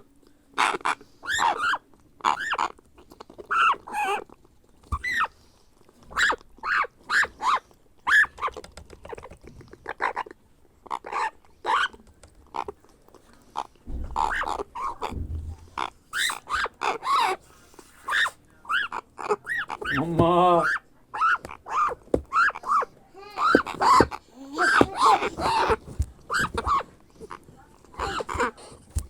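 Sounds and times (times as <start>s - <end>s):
parrot chick rasping cries: 0.6s - 2.8s, 3.5s - 4.2s, 5.0s - 5.4s, 6.1s - 8.6s, 10.9s - 12.0s, 14.1s - 15.1s, 15.7s - 27.4s, 28.0s - 28.6s.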